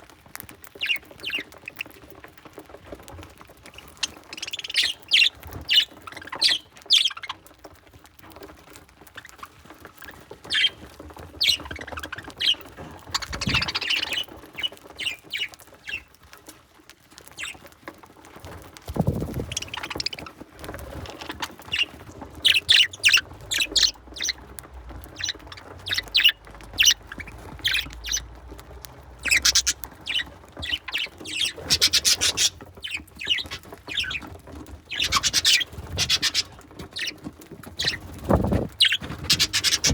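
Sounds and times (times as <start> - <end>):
budgerigars chirping: 3.8 - 7.4, 10.4 - 10.8, 11.4 - 16.1, 19.3 - 20.3, 21.0 - 28.4, 29.1 - 37.2, 37.8 - 39.9.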